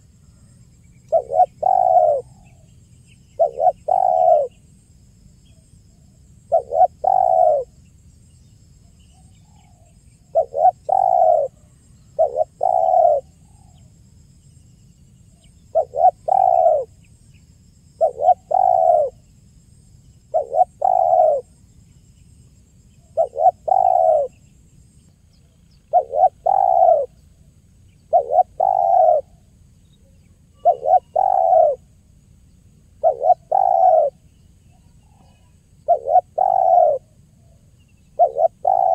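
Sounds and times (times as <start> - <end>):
dove cooing: 1.1 - 2.6, 3.4 - 4.6, 6.5 - 7.8, 9.5 - 13.8, 15.7 - 17.0, 18.0 - 19.2, 20.3 - 21.5, 23.1 - 24.4, 25.9 - 27.2, 28.0 - 29.4, 30.0 - 31.9, 33.0 - 34.2, 34.8 - 38.9.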